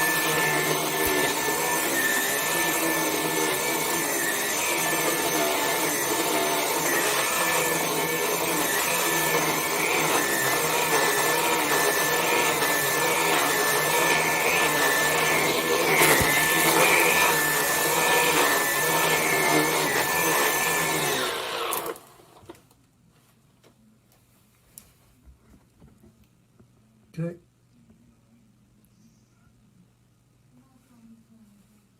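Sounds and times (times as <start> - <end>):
stick vacuum cleaner whining: 0.0 - 22.7.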